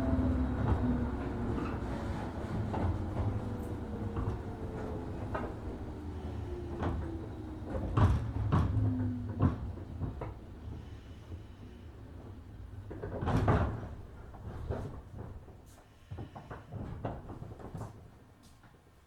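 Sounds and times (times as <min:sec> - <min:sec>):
train motor whine: 0:00.0 - 0:07.8
train running rumble: 0:00.0 - 0:17.6
train body knocks and clunks: 0:06.8 - 0:10.4.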